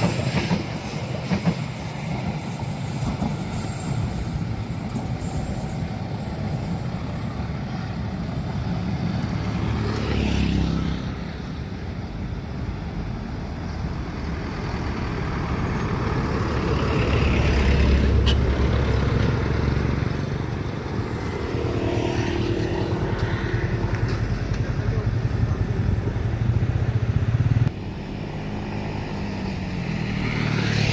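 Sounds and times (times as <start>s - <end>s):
vehicles driving past: 8.0s - 30.9s.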